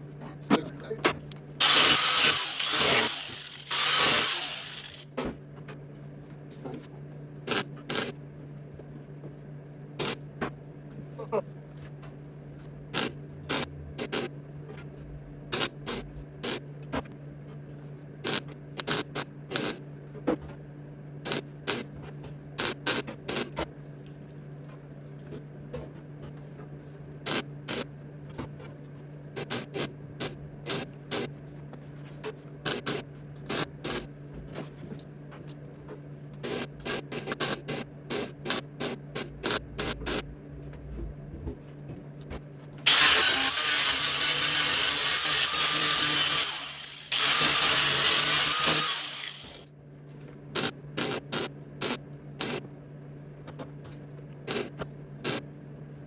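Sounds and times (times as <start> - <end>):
welder low hum: 1.6 - 5.0, 36.4 - 40.2, 42.9 - 49.6
welder crackling hisses: 42.9 - 49.6.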